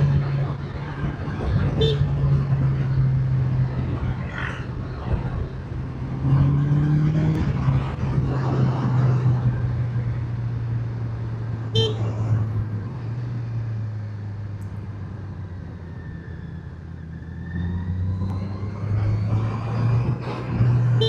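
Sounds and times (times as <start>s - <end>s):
rushing wind noise: 0.0s - 10.2s.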